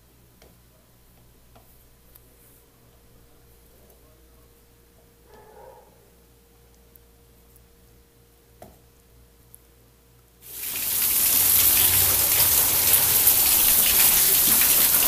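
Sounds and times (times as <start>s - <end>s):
heavy rain splashing on ground: 10.5s - 15.0s.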